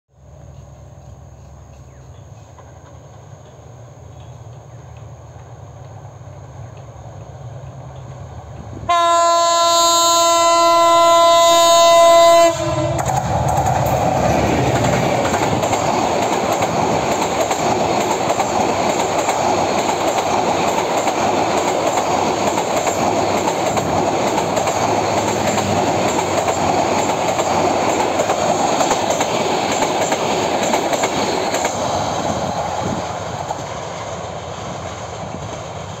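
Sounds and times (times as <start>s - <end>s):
train rumbling and clattering: 0.2s - 36.0s
locomotive horn blast: 8.8s - 13.1s.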